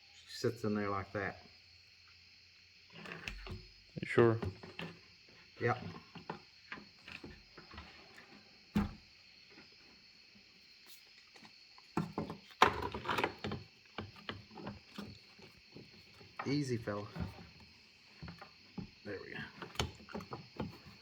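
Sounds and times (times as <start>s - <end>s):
knocks and clatter of parts: 11.9s - 21.0s.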